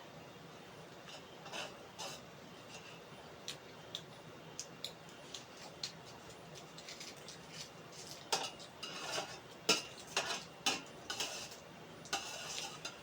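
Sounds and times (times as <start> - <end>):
utensils clinking on a plate: 6.6 - 13.0.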